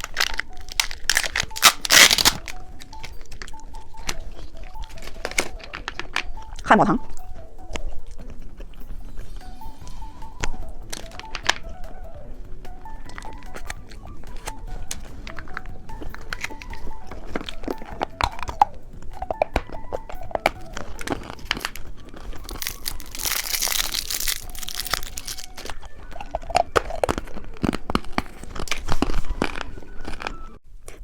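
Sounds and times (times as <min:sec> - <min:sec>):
packaging crinkling and tearing: 0:00.0 - 0:06.5, 0:13.1 - 0:18.7, 0:19.3 - 0:31.0
candy crunching: 0:00.0 - 0:31.0.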